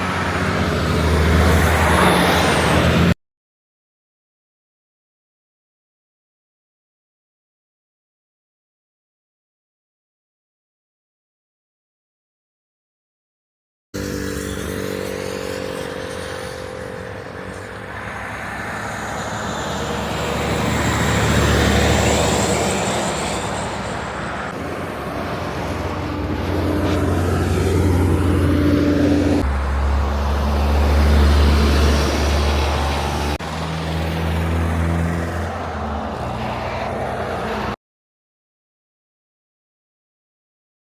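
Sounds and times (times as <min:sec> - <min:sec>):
heavy trucks driving by: 0:00.0 - 0:03.2, 0:14.0 - 0:37.8.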